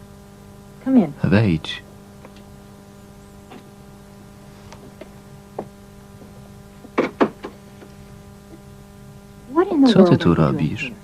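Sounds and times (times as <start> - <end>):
mains hum: 0.0 - 11.0
sharp knocks: 5.5 - 7.6.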